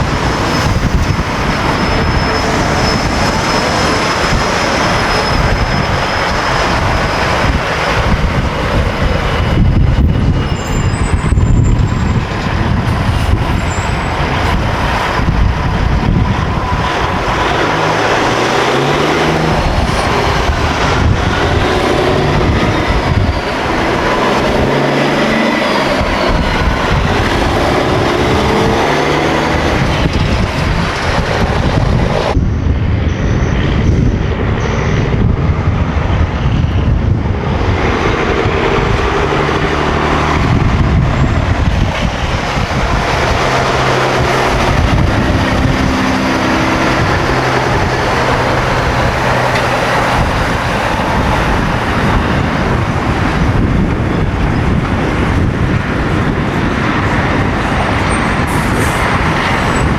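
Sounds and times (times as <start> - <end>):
road noise: 0.0 - 59.9
truck diesel engines passing: 0.0 - 59.9.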